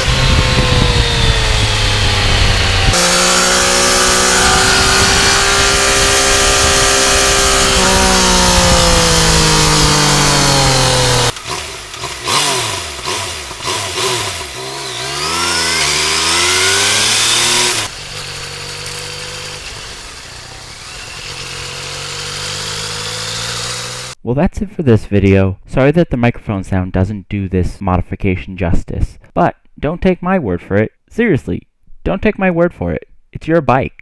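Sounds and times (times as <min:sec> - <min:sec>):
motorcycle engine revving: 0:00.0 - 0:24.2.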